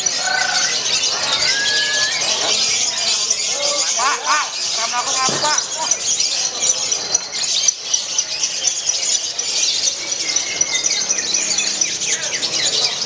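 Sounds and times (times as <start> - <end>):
songbird twittering: 0.0 - 13.0.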